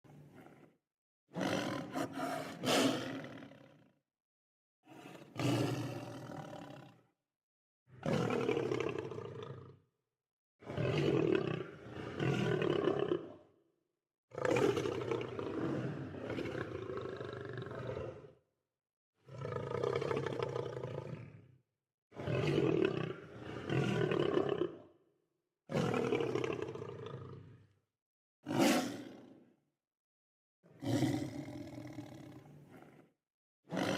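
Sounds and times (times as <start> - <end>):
lion roaring: 0.1 - 0.7, 1.4 - 3.8, 4.9 - 7.0, 14.4 - 18.3, 19.3 - 21.4, 22.2 - 24.8, 28.5 - 29.2, 30.8 - 33.1.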